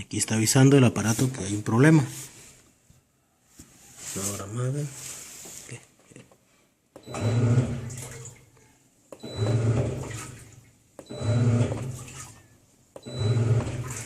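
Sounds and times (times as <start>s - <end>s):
washing machine motor humming: 7.0s - 8.5s, 9.1s - 14.0s
water churning in tub: 7.1s - 8.6s, 9.2s - 14.0s.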